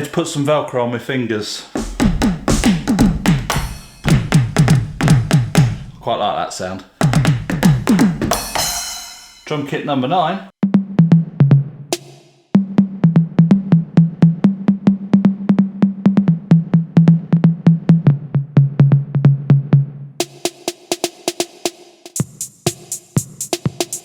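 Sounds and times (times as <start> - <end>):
electronic cymbal hits: 1.8 - 4.8, 7.8 - 9.6
electronic low drum hits: 1.8 - 6.0, 7.0 - 9.5, 10.6 - 11.9.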